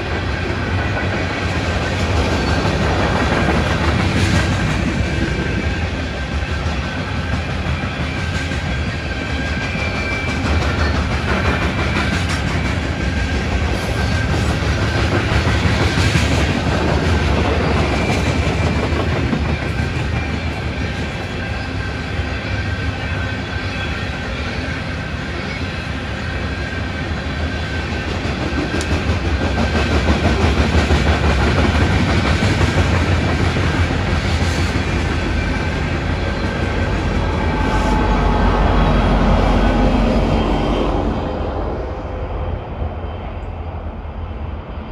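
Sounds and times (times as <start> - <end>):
train wheels clicking over rail joints: 0.0 - 23.0, 26.3 - 38.1
train rumble: 0.0 - 44.9.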